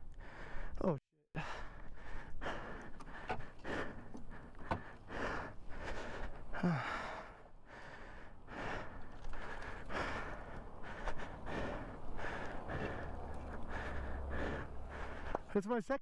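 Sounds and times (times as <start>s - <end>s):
man breathing hard: 0.1s - 0.8s, 1.4s - 15.5s.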